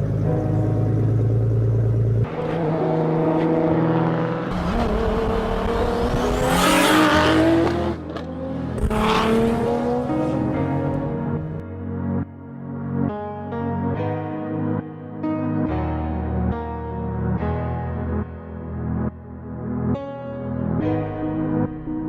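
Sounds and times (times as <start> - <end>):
music: 0.0 - 2.3, 8.0 - 22.0
car engine revving: 0.0 - 11.6.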